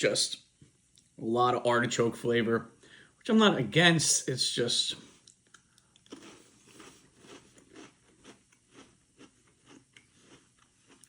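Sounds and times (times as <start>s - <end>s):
chewing crunchy cracker: 5.3s - 11.0s.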